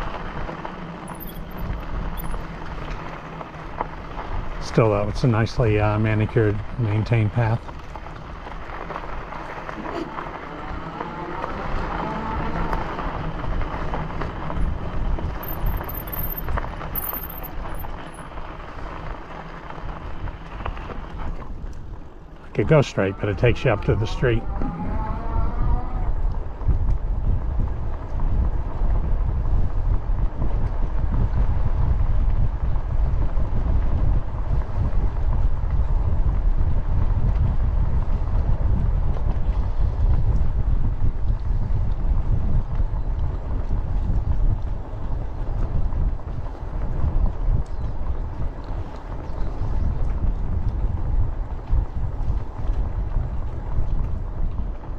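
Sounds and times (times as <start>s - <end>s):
bicycle tyres rolling on pavement: 0.0s - 54.9s
wind rushing over microphone: 0.0s - 54.9s.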